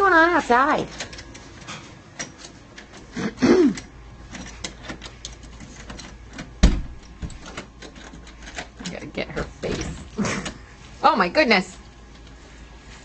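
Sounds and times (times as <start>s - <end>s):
handling noise and clicks: 3.7s - 9.1s.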